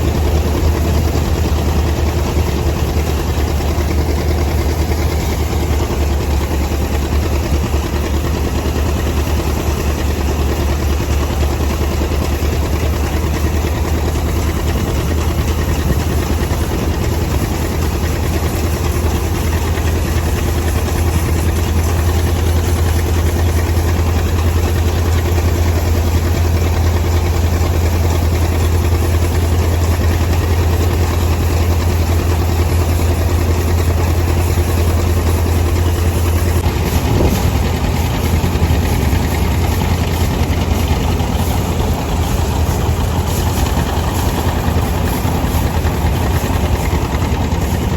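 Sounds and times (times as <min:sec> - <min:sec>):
tractor engine droning: 0:00.0 - 0:47.9.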